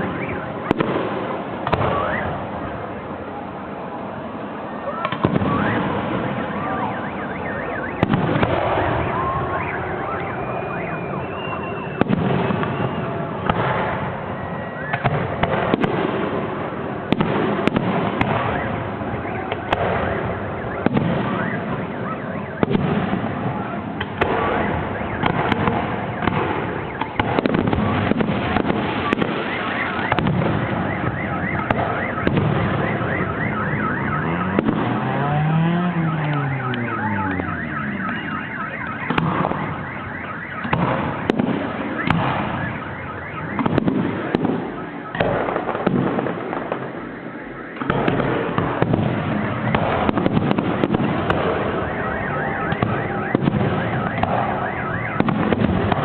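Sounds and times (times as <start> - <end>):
fireworks whistling: 0.0 - 3.2, 4.4 - 56.0
fireworks bangs and crackles: 0.0 - 56.0
siren-like wailing tone: 4.7 - 15.4, 18.4 - 45.7, 51.4 - 56.0.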